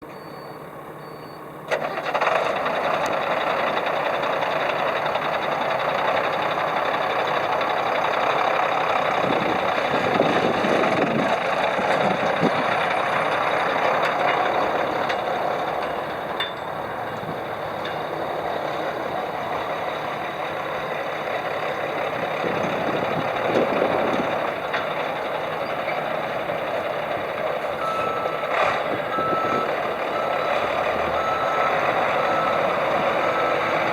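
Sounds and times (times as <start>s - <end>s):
diesel truck engine running: 0.0s - 33.9s
reversing beeper: 0.1s - 1.5s, 27.7s - 33.9s.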